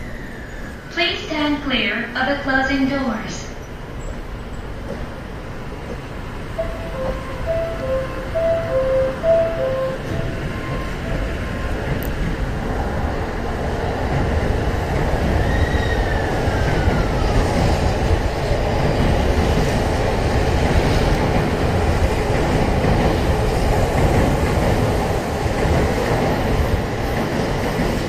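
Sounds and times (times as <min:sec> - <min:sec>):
train wheels rumbling on rail: 0:03.0 - 0:28.0.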